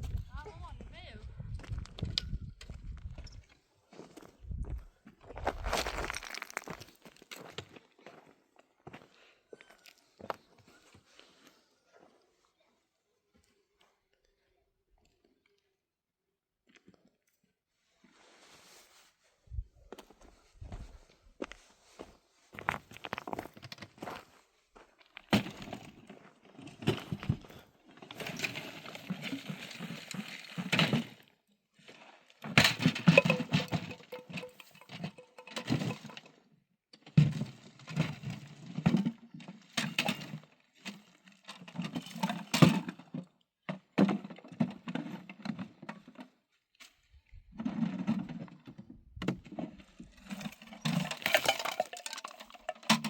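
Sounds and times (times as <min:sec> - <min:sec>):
objects knocking and clattering: 0:05.5 - 0:06.9, 0:32.5 - 0:36.4, 0:37.0 - 0:46.3, 0:47.5 - 0:53.0.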